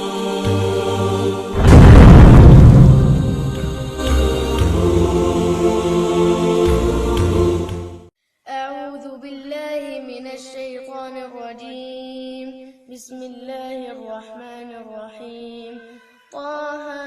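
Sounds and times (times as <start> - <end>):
intro music with low tones: 1.6 - 8.1.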